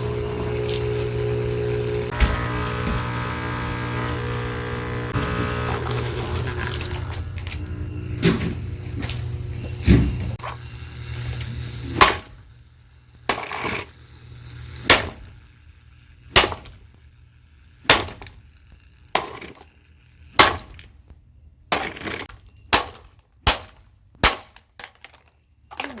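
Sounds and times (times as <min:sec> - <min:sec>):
plastic cracking and breaking: 0:22.2 - 0:26.0.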